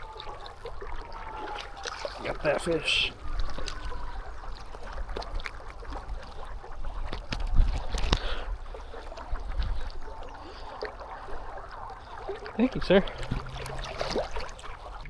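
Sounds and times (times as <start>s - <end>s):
creek water splashing: 0.0s - 15.0s
wind rumble on microphone: 3.1s - 12.2s.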